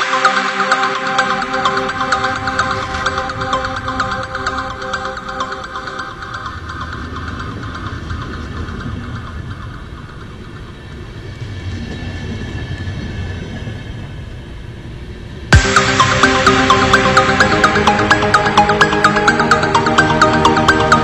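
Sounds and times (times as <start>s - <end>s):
train wheels rumbling on rails: 5.8s - 15.5s.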